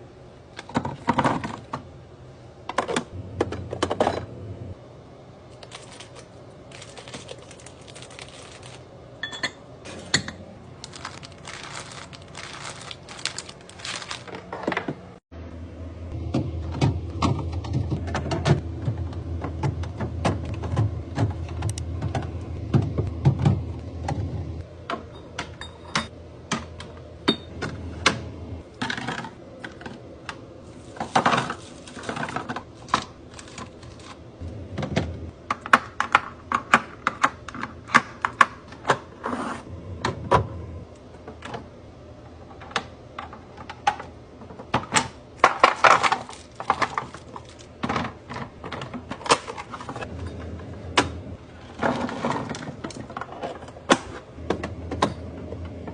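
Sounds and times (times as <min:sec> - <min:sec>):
packages rustling and scraping: 0:05.6 - 0:08.9, 0:10.8 - 0:15.0, 0:30.6 - 0:34.2, 0:45.4 - 0:50.2, 0:51.5 - 0:53.9.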